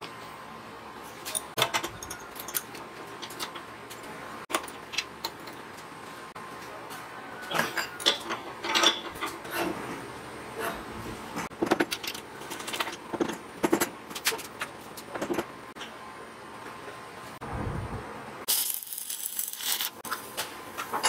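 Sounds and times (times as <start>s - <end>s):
steel parts being handled: 1.1s - 5.8s, 7.6s - 9.8s, 11.5s - 15.9s, 18.5s - 20.2s.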